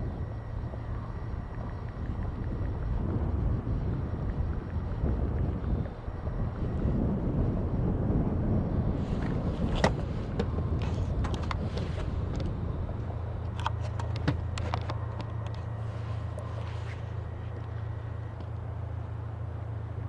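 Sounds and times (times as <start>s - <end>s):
boat diesel engine rumble: 0.0s - 20.0s.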